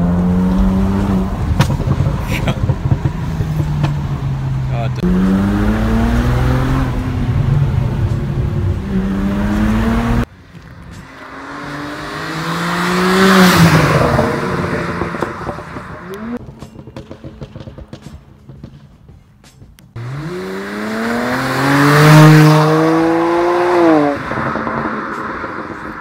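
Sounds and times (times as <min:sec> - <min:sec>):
car engine accelerating hard: 0:00.0 - 0:10.3, 0:11.0 - 0:16.4, 0:20.0 - 0:26.0
car passing at speed: 0:11.0 - 0:16.4, 0:20.0 - 0:26.0.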